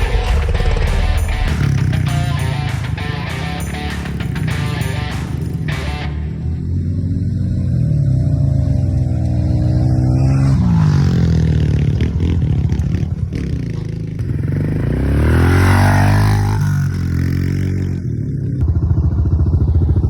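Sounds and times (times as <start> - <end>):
clatter: 0.0 - 6.2
motorbike engine revving: 0.0 - 20.0.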